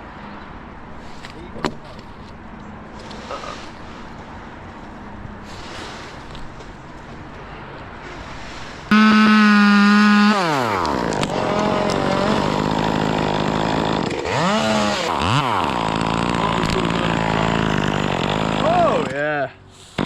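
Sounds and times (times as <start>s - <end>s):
chainsaw revving: 8.9s - 19.2s.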